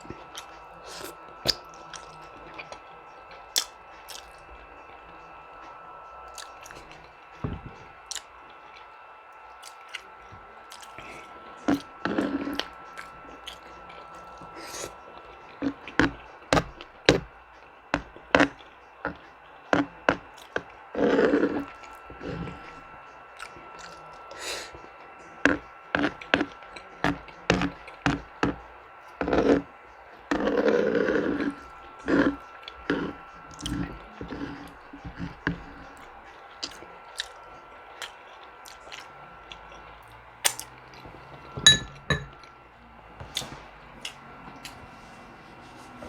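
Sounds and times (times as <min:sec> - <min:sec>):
person chewing food: 0:00.0 - 0:42.6, 0:43.2 - 0:46.0.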